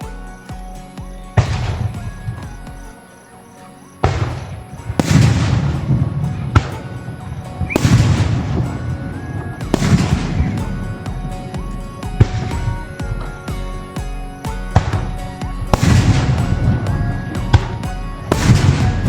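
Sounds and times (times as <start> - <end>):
background music: 0.0 - 19.0
firework crackle: 0.0 - 19.0
firework bangs: 4.0 - 19.0.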